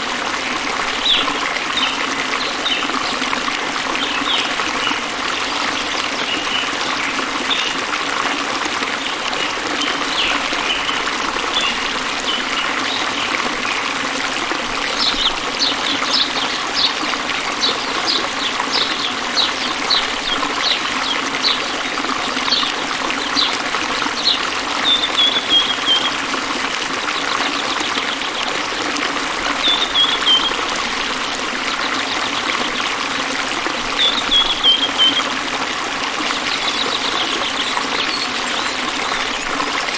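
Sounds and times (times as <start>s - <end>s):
water trickling: 0.0s - 39.9s
bird chirping: 34.0s - 35.3s, 36.3s - 39.9s.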